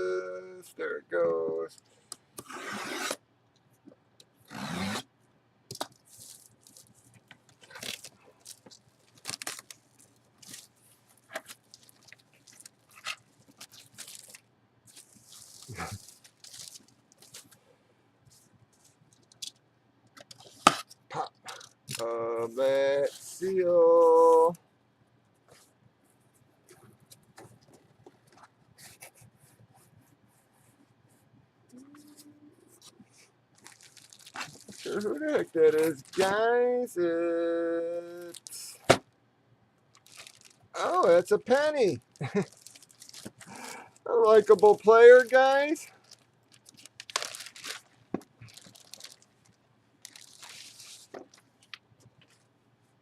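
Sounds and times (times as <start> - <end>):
plastic packaging crinkling: 5.7 - 17.6, 33.5 - 36.4, 38.1 - 38.9, 39.9 - 52.4.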